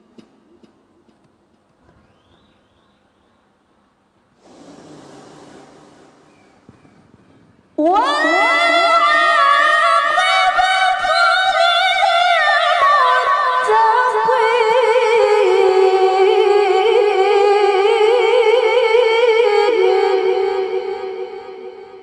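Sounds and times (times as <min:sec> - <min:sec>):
woman chanting melismatic recitation: 0:07.8 - 0:21.8.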